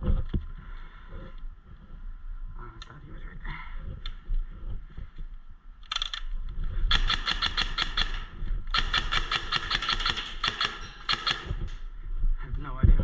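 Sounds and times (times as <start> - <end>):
airsoft gun firing bursts: 6.9 - 11.9.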